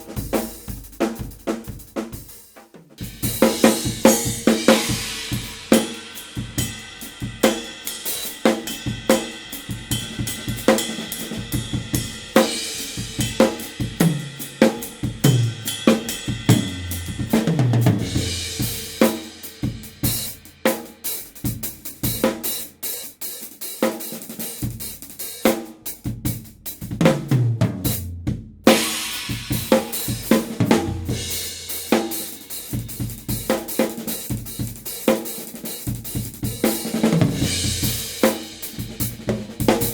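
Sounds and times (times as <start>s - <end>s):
drum kit playing a busy groove: 0.0s - 39.9s
deep drum strokes falling in pitch: 15.0s - 20.4s.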